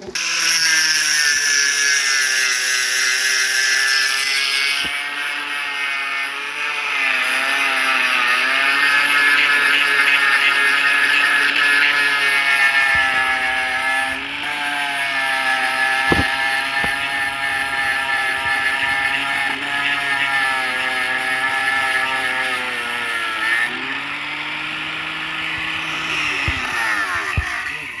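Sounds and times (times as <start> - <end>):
engine running: 10.6 - 28.0
sharp knocks: 12.5 - 20.4, 25.4 - 27.7.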